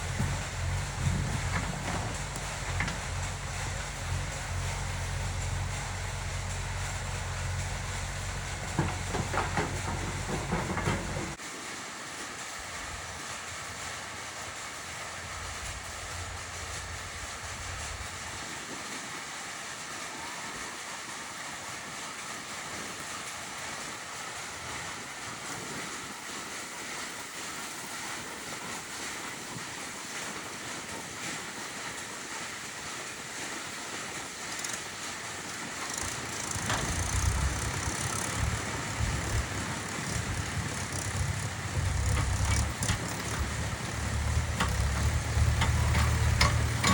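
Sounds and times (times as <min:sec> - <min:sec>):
diesel engine running: 0:00.0 - 0:11.4, 0:35.8 - 0:46.9.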